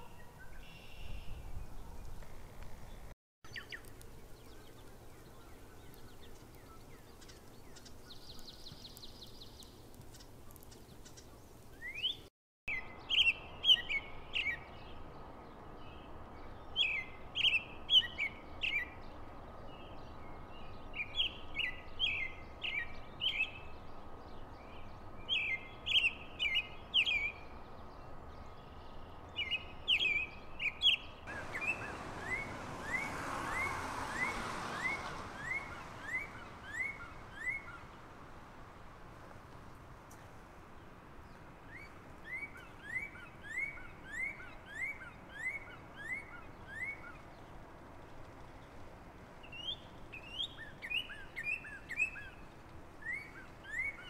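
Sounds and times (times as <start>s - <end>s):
bird singing high chirps: 0.0s - 9.7s, 10.7s - 15.0s, 28.5s - 37.9s, 41.7s - 47.3s, 49.4s - 54.0s.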